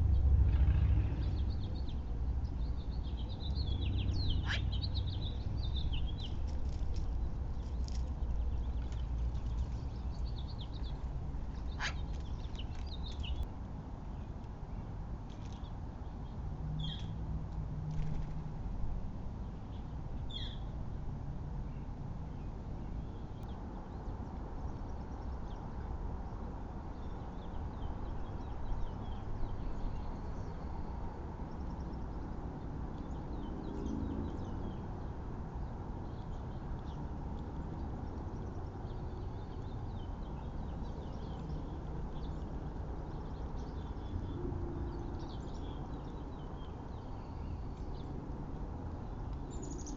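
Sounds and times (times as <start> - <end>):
steady low rumble: 0.0 - 13.5.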